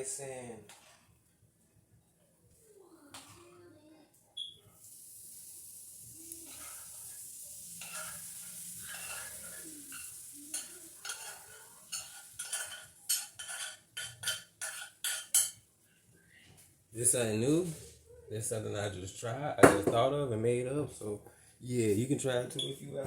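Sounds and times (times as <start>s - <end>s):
rice sizzling in a pan: 4.4s - 15.7s
utensil scraping a pan: 6.3s - 7.0s, 7.6s - 15.6s.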